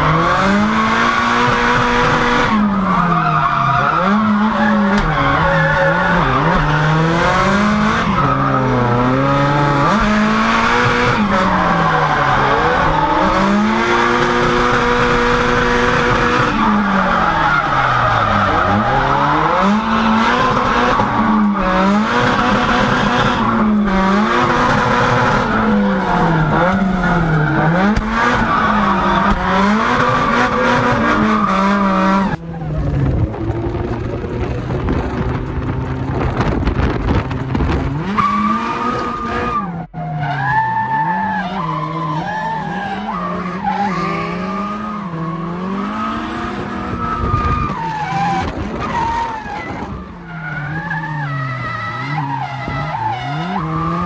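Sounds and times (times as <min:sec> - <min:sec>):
car engine revving hard: 0:00.0 - 0:32.4, 0:41.9 - 0:48.8, 0:51.5 - 0:54.0
tyres spinning and skidding: 0:00.0 - 0:54.0.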